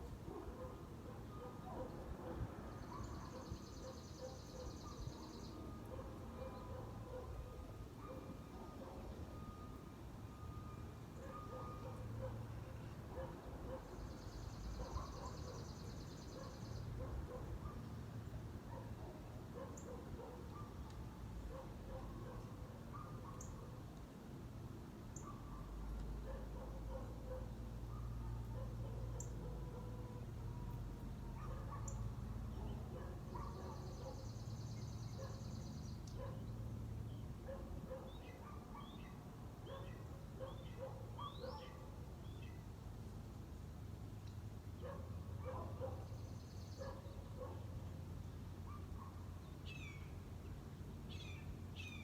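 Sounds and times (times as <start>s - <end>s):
birds chirping: 13.2s - 17.8s, 31.4s - 36.6s, 44.8s - 47.6s.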